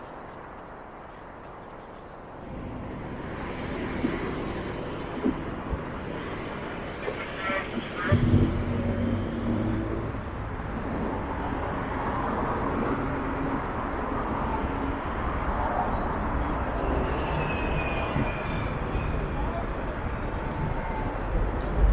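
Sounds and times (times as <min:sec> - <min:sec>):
street traffic: 0:00.0 - 0:21.9
heavy vehicle engine humming: 0:02.6 - 0:11.8.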